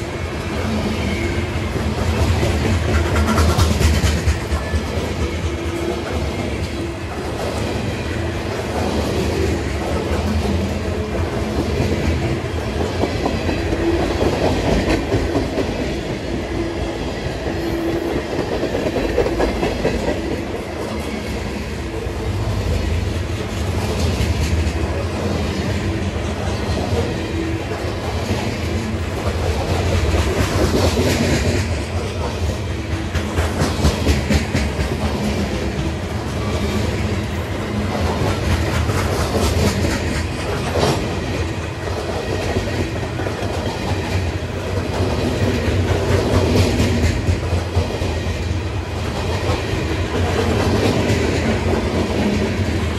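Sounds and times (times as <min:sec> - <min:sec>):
clickety-clack over rail joints: 0:00.0 - 0:52.9
rumble of train wheels: 0:00.0 - 0:52.9.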